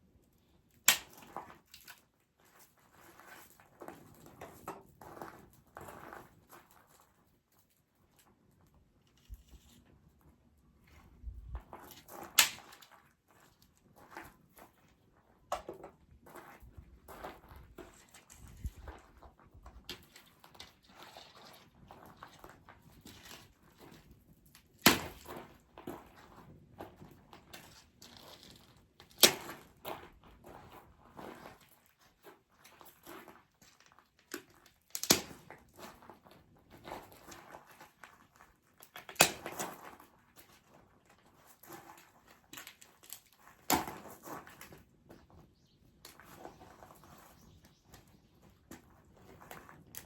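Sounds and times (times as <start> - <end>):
dry wood cracking: 0.8 - 2.0, 33.8 - 35.6.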